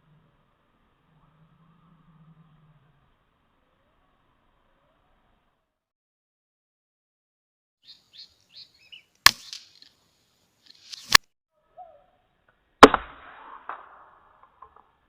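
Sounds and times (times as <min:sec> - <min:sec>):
air rifle shots: 0:12.8 - 0:14.2.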